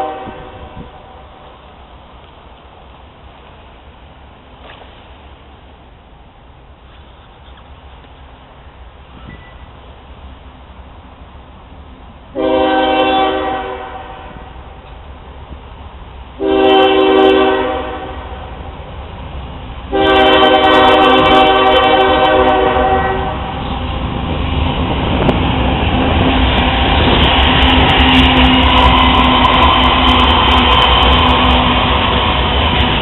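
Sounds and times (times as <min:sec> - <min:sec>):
locomotive air horn blasts: 0:00.0 - 0:01.3, 0:12.4 - 0:14.5, 0:16.4 - 0:18.6, 0:19.9 - 0:23.7
train rumbling: 0:00.0 - 0:33.0.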